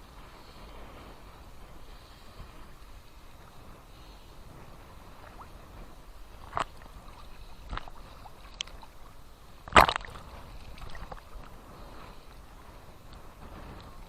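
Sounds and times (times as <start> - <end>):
waves lapping at shore: 0.0 - 14.0
water splashing: 4.9 - 14.0.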